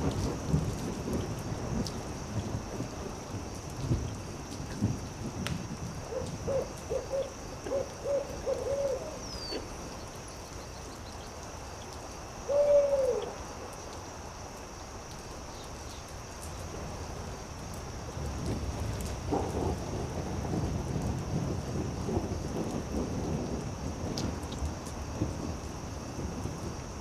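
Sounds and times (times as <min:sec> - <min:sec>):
sharp crackles: 0:03.6 - 0:06.9
owl hooting: 0:06.1 - 0:09.7, 0:12.5 - 0:13.4.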